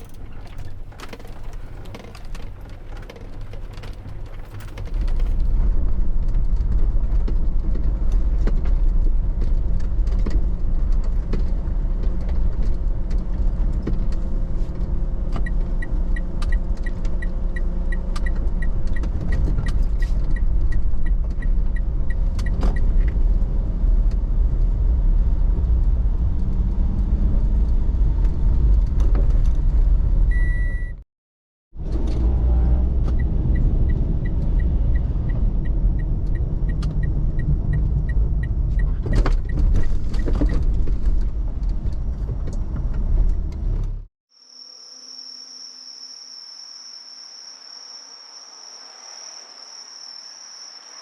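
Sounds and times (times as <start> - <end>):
car road and engine rumble: 0.0 - 31.0, 31.8 - 44.1.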